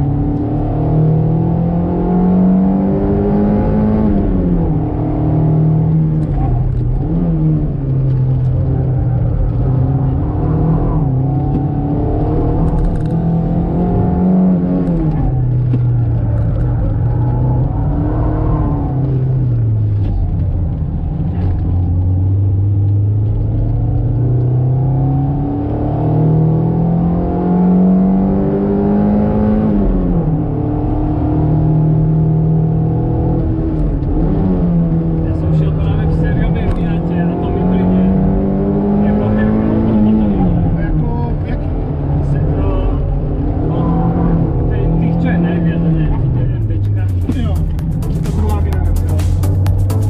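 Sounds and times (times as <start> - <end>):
car engine revving: 0.0 - 50.0.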